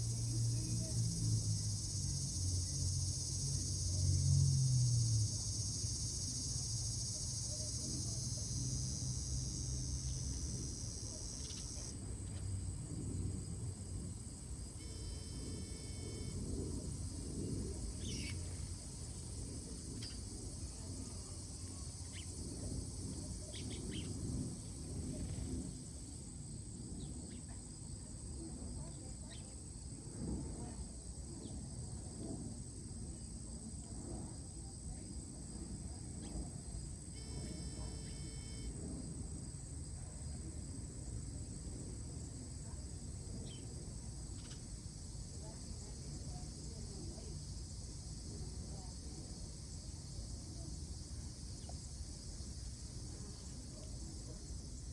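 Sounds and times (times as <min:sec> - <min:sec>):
high-pitched insect drone: 0:00.0 - 0:11.9, 0:37.2 - 0:38.7
faint steady whine: 0:00.0 - 0:27.4, 0:35.8 - 0:43.7
high insect drone: 0:00.0 - 0:30.0, 0:32.5 - 0:54.9.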